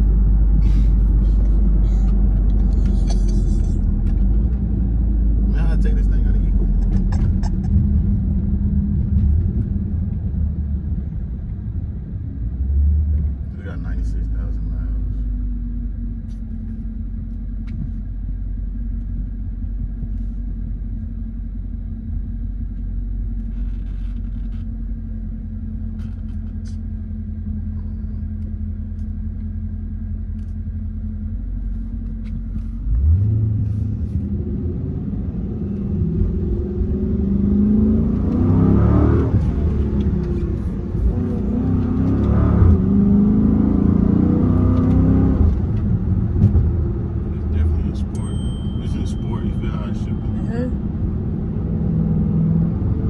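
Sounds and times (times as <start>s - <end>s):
car engine rumbling: 0.0s - 53.0s
engine accelerating through gears: 23.4s - 53.0s.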